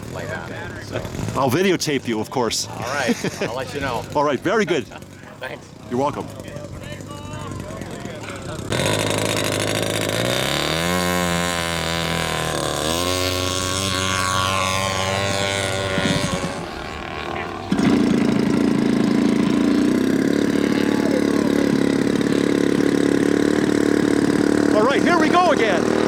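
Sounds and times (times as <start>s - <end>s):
model airplane engines: 0.0s - 26.0s.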